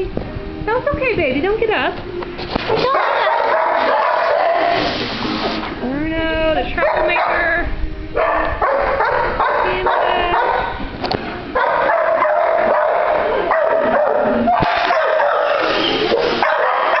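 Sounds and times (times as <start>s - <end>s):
dogs barking and yipping: 2.7s - 5.1s, 6.8s - 7.5s, 8.2s - 17.0s.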